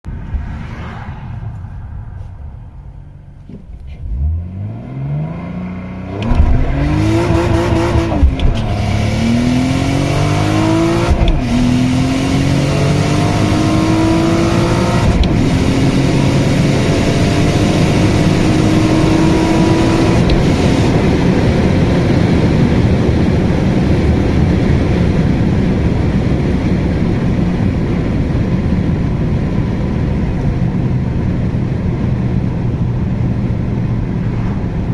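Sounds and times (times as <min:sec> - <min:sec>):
steady rushing noise: 0:00.0 - 0:04.2
car engine accelerating: 0:00.0 - 0:34.9.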